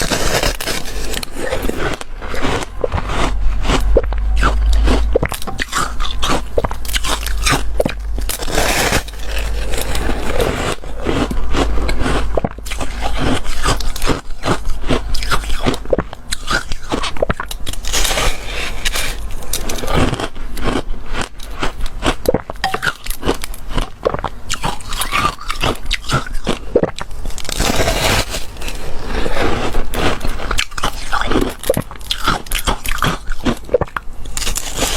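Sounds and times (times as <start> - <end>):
ice scraping: 0.0 - 15.8, 17.7 - 20.2, 27.4 - 31.8, 34.4 - 34.9
crunching and chewing ice: 0.0 - 34.9.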